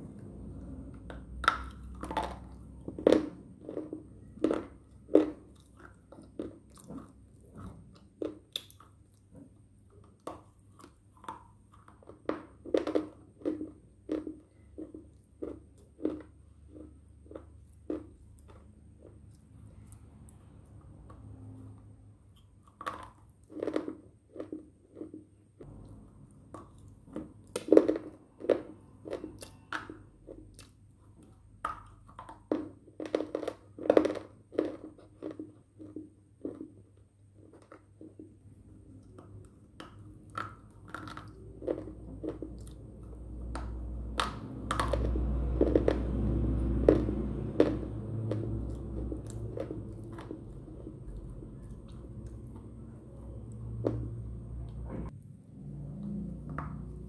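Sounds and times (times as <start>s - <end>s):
low rumble: 0.0s - 3.6s, 25.6s - 27.1s, 41.5s - 57.0s.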